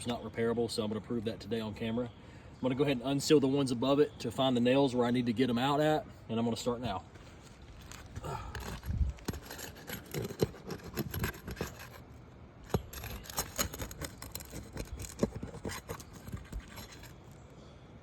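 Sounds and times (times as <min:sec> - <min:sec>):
roof shingles scraping: 0:07.2 - 0:17.2
shingle seals snapping: 0:07.8 - 0:12.0, 0:12.6 - 0:17.2.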